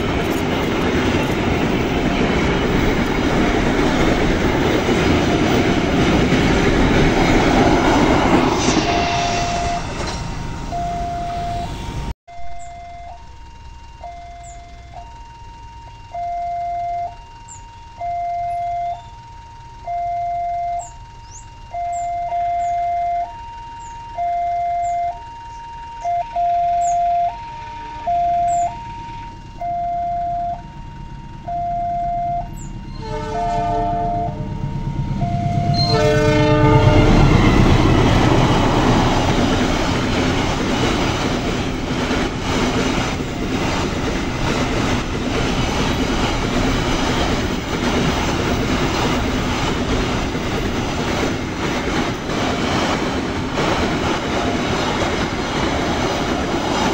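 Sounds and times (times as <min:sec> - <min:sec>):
wheels clattering on rail joints: 0:00.0 - 0:12.0, 0:35.5 - 0:56.9
train passing rumbling: 0:00.0 - 0:56.9
train horn: 0:08.2 - 0:15.1, 0:24.5 - 0:39.8
level crossing two-tone alarm: 0:08.8 - 0:40.6.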